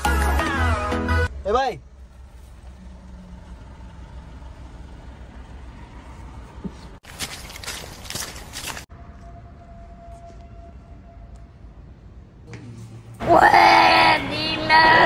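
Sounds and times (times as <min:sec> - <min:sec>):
car idling: 0:01.3 - 0:07.0.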